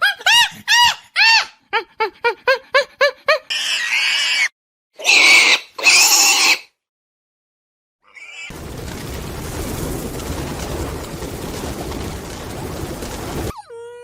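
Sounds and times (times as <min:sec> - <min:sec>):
animal squeaking and squealing: 0:03.5 - 0:06.7.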